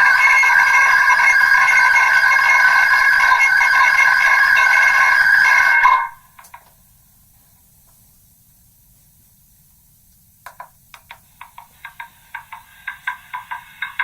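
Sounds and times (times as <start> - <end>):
loud tinny drone: 0.0 - 6.3
faint hiss: 6.2 - 14.0.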